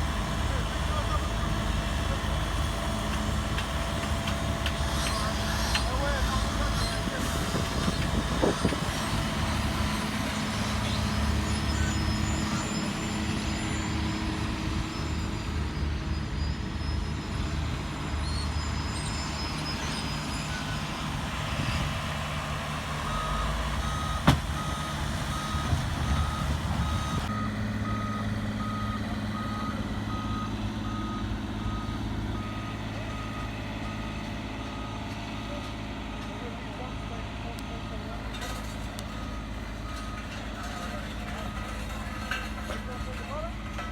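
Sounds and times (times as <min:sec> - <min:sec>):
heavy machinery engine running: 0:00.0 - 0:43.9
backup alarm beeping: 0:23.0 - 0:33.5.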